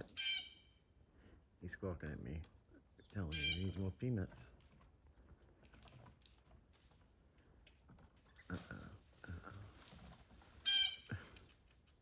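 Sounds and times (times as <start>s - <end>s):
blue jay calling: 0.1s - 0.8s, 3.2s - 3.8s, 10.6s - 11.1s.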